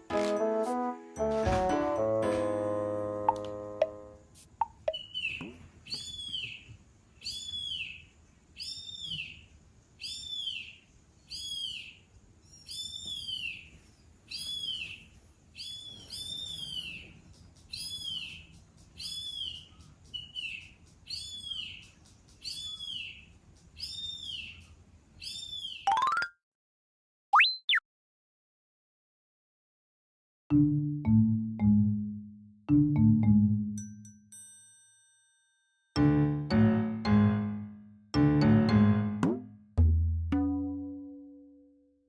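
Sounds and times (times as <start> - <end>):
high chirping call: 3.3 - 5.4.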